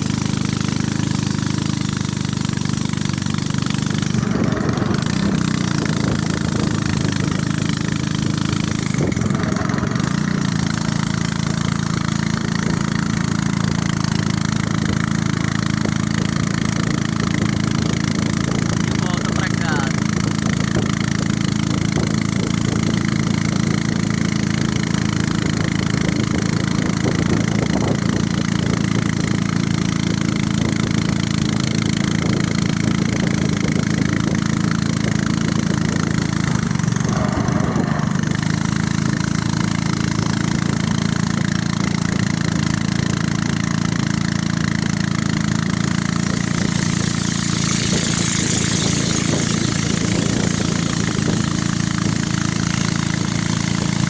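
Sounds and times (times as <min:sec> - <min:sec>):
small boat motor running: 0:00.0 - 0:54.0.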